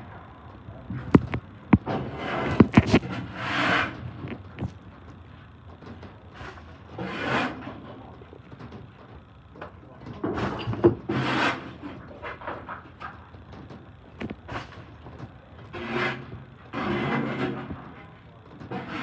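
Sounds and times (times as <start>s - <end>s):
debris scraping metal: 15.7s - 18.0s.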